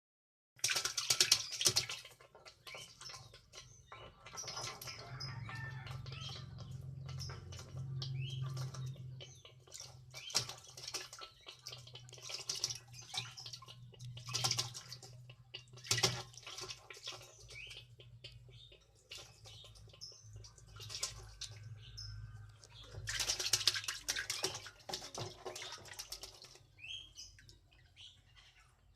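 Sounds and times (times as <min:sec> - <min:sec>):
water splashing: 0:00.6 - 0:27.8
bird chirping: 0:01.2 - 0:28.9
low steady hum: 0:03.3 - 0:28.9.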